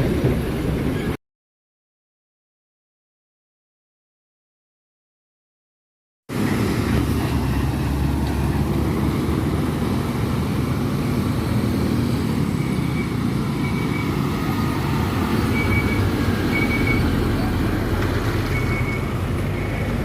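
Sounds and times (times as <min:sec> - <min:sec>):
heavy vehicle engine rumble: 0:00.0 - 0:01.2, 0:06.3 - 0:20.0
roadside traffic: 0:06.3 - 0:20.0.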